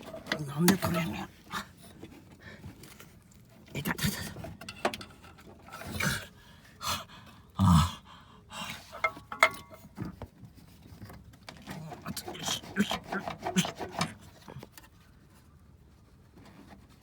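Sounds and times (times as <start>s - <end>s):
tools knocking and scraping: 0.0s - 1.2s, 4.2s - 6.3s, 8.9s - 14.9s
person straining and grunting: 5.9s - 9.0s.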